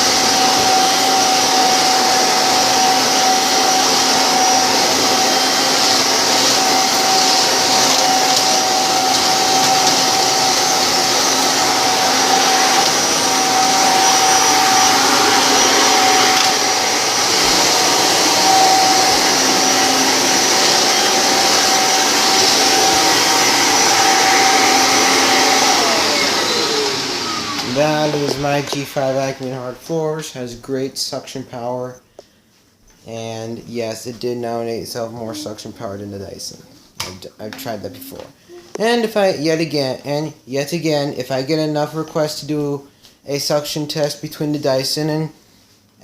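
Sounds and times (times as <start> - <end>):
vacuum cleaner motor whine: 0.0 - 30.2.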